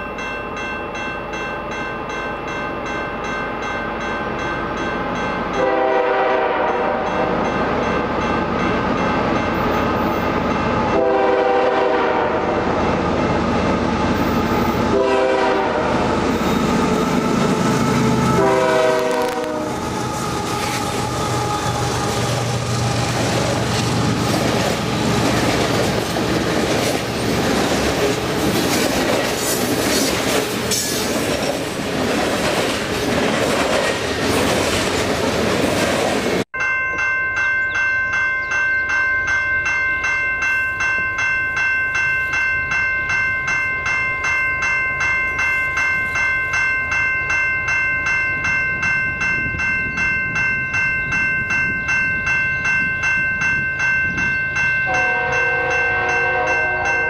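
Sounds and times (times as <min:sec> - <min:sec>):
railway crossing bell ringing: 0:00.0 - 0:34.8, 0:36.3 - 0:57.0
freight train wheels rushing: 0:03.6 - 0:36.5.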